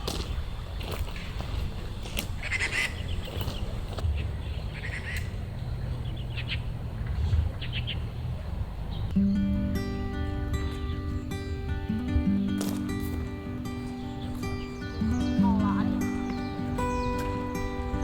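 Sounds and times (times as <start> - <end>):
rapid bird calls: 0.0 - 9.5, 10.5 - 18.0
steady low rumble: 3.0 - 12.4
music: 9.1 - 18.0.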